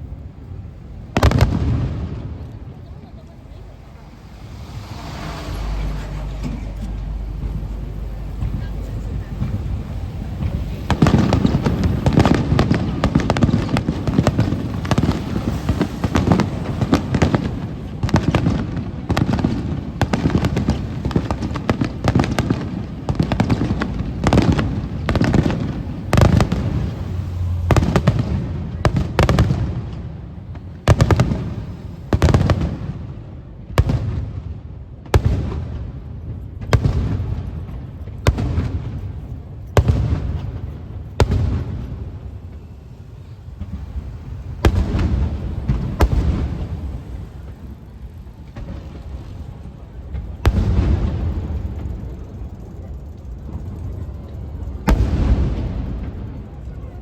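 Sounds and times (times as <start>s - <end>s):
fireworks bursting: 0.0s - 57.0s
low rumble: 3.2s - 13.1s.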